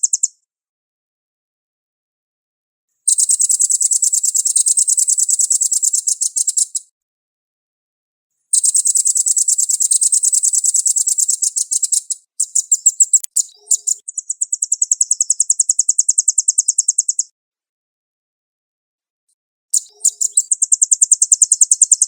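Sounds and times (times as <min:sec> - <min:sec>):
bird singing high trills: 0:19.8 - 0:22.0.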